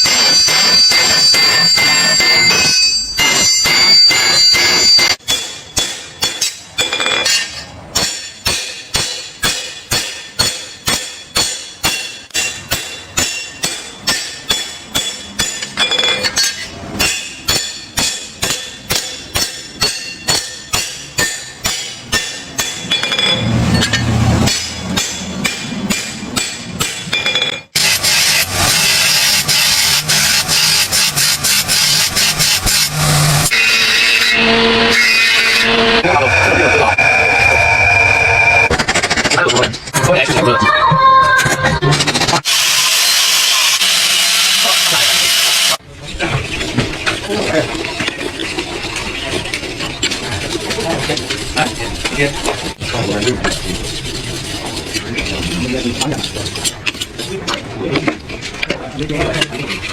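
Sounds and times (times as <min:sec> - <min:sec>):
hammer striking steel blade: 0:00.0 - 0:35.9.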